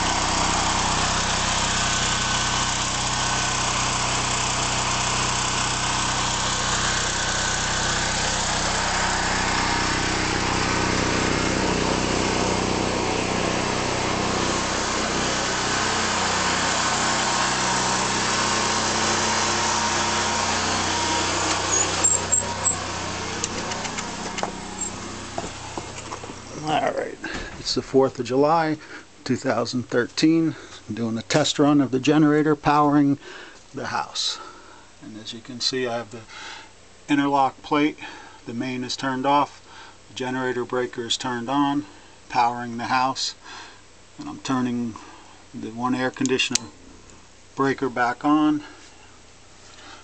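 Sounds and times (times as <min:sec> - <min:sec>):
generator engine running: 0:00.0 - 0:29.2.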